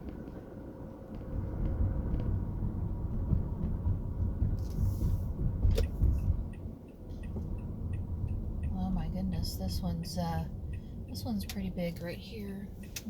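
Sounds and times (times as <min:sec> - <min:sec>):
car road and engine rumble: 0:00.0 - 0:13.0
faint regular ticks: 0:12.6 - 0:13.0.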